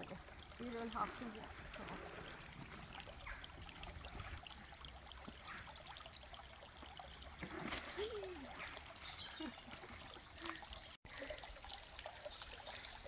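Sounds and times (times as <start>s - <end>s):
stream trickling: 0.0s - 13.0s.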